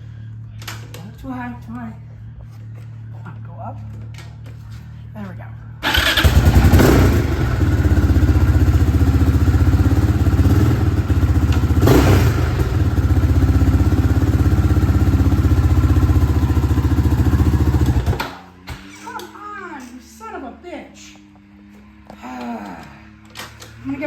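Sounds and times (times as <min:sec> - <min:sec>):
quad bike engine running: 0:05.8 - 0:18.4.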